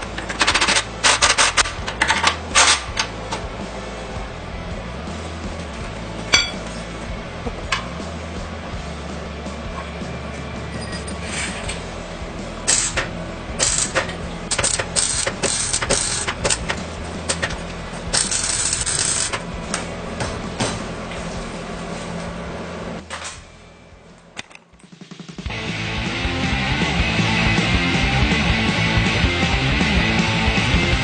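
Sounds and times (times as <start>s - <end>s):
mechanical clicks and clanks: 0.0s - 3.5s, 12.6s - 19.9s
low hum: 0.0s - 24.6s.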